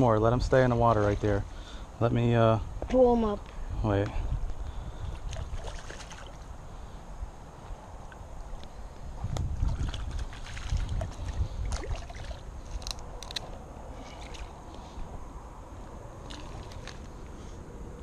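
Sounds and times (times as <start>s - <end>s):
wind rumbling on microphone: 2.2s - 18.0s
camera handling noise: 12.7s - 13.6s.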